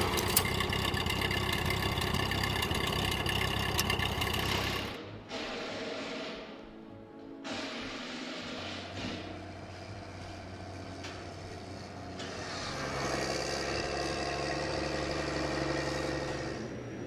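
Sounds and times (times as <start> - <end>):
engine idling and revving: 0.0 - 5.0, 9.4 - 17.0.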